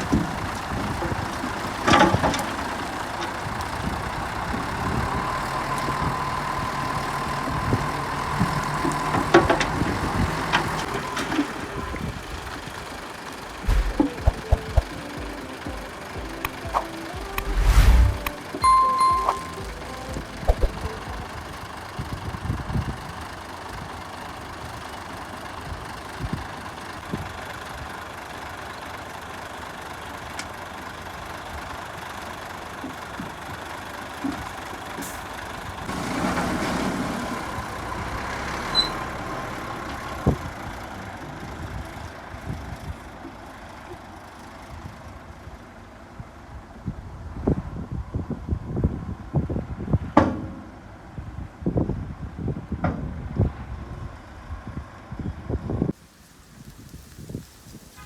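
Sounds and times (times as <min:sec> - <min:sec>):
heavy diesel engines running: 0:00.0 - 0:57.9
short beep: 0:16.6 - 0:21.0.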